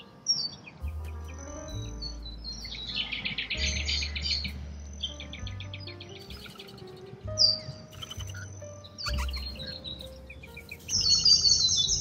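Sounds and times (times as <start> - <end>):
birds chirping: 0.0 - 12.0
soft background music: 0.0 - 12.0
bird chattering trill: 5.2 - 12.0.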